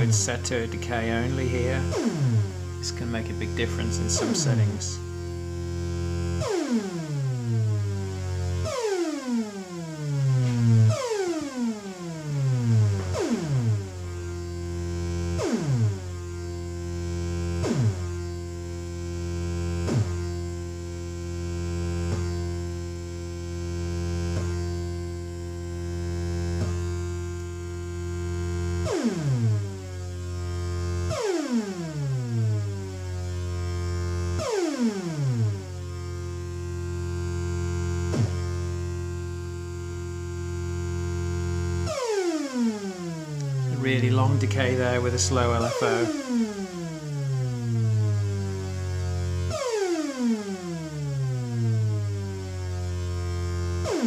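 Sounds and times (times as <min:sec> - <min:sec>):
steady low hum: 0:00.0 - 0:06.5
synthesizer downward sweeps: 0:00.0 - 0:08.0, 0:08.6 - 0:17.0, 0:42.8 - 0:47.0
buzzy synthesizer drone: 0:00.0 - 0:54.0.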